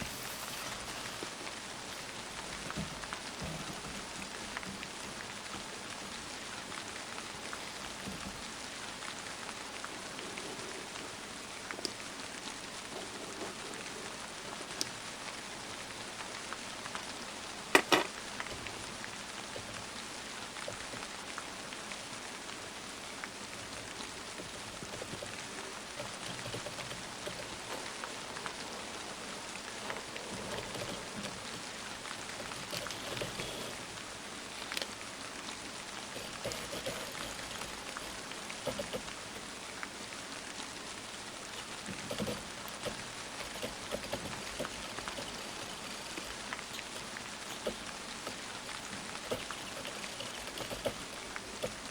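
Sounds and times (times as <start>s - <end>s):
light clicks and taps: 0.0s - 9.2s, 23.7s - 33.9s, 36.1s - 39.5s, 41.4s - 51.9s
steady rain hiss: 0.0s - 51.9s.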